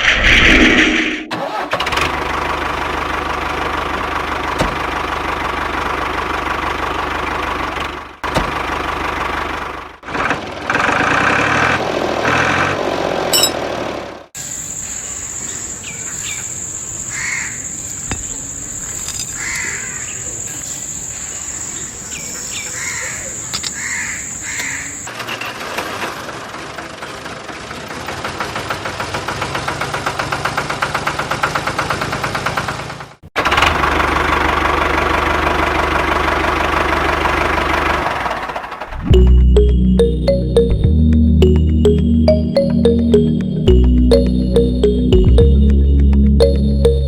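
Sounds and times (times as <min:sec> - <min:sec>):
crows cawing: 0:17.1 - 0:17.6, 0:19.4 - 0:20.1, 0:22.7 - 0:25.0.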